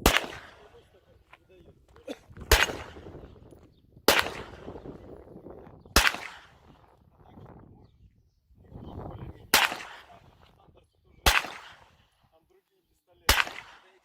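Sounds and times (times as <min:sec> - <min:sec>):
pistol shots with echo: 0:00.0 - 0:01.0, 0:02.4 - 0:05.3, 0:05.9 - 0:07.0, 0:09.4 - 0:10.4, 0:11.2 - 0:12.1, 0:13.2 - 0:14.0.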